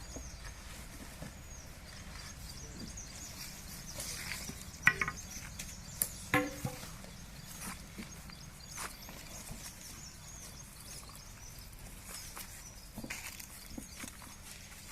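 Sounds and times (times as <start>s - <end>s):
small birds chirping: 0.0s - 14.9s
short sharp knocks or calls: 4.8s - 5.3s.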